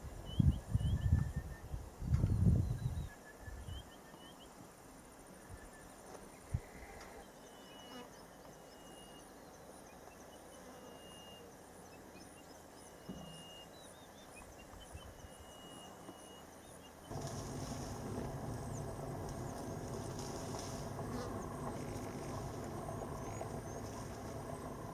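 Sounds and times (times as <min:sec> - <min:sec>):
whistled bird notes: 0:12.2 - 0:17.0
low hum: 0:17.1 - 0:24.9.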